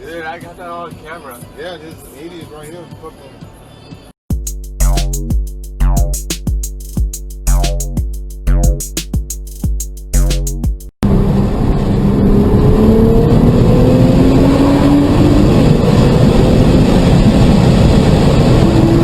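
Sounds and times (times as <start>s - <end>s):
car engine accelerating: 10.2s - 19.0s
road and wind noise: 11.0s - 19.0s.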